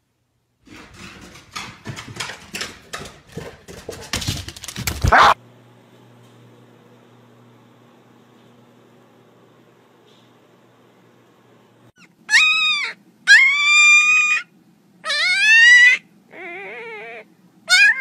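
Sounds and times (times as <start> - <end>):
puppy whining: 5.1 - 5.4, 12.0 - 18.0.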